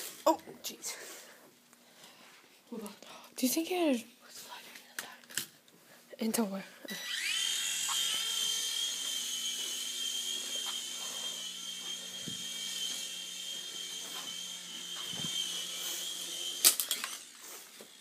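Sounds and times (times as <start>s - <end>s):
toy airplane motor whining: 6.9s - 18.0s.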